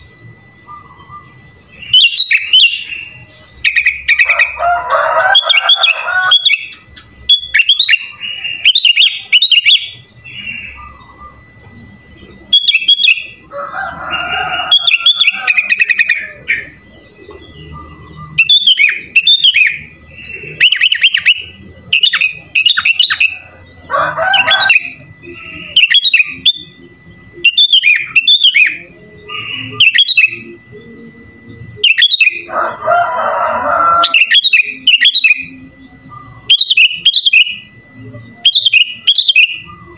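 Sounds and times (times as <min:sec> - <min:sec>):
bird singing whistled phrases: 0:00.7 - 0:04.3, 0:05.4 - 0:11.7, 0:18.2 - 0:19.8, 0:20.4 - 0:23.4, 0:24.4 - 0:30.6, 0:31.7 - 0:32.5, 0:34.0 - 0:39.9.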